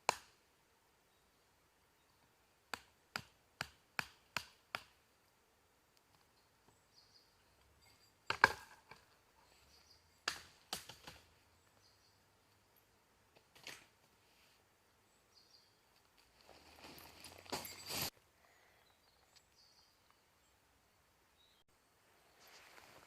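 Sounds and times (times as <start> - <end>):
wood being chopped: 2.7 - 5.0, 10.2 - 11.3.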